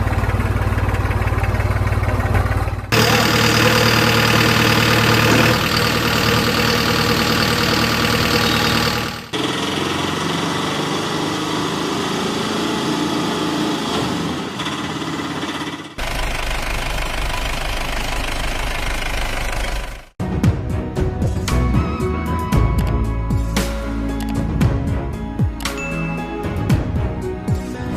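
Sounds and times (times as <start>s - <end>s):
tractor engines running: 0.0s - 20.2s.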